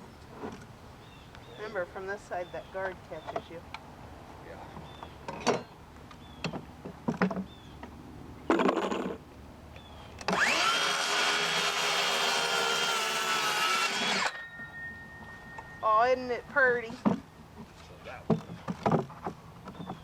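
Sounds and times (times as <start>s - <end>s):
electric saw cutting board: 10.2s - 14.4s
boards being handled: 16.8s - 20.0s.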